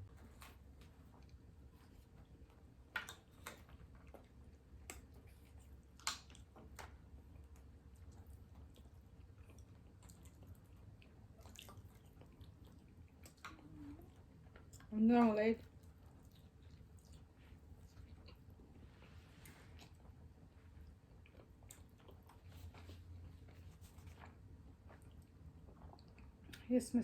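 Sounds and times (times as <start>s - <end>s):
chewing boiled egg: 0.0s - 26.7s
soft mouth clicks and smacks: 2.0s - 14.9s.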